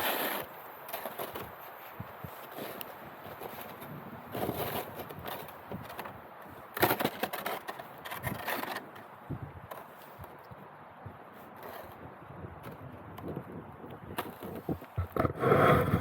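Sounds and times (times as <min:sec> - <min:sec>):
roof rake scraping snow: 0:00.0 - 0:09.0, 0:11.5 - 0:12.0, 0:14.3 - 0:16.0.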